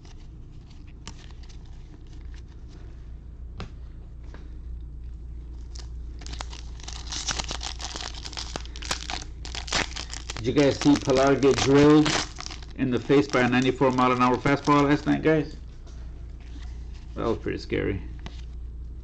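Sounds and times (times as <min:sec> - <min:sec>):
foil wrapper crinkling and tearing: 0:05.6 - 0:15.5.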